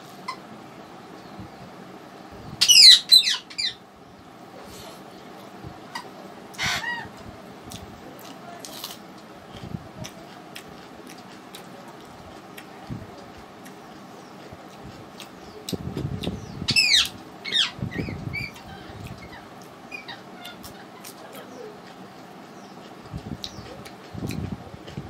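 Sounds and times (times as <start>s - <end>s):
clicks of eating by hand: 7.6s - 16.4s, 20.4s - 25.0s.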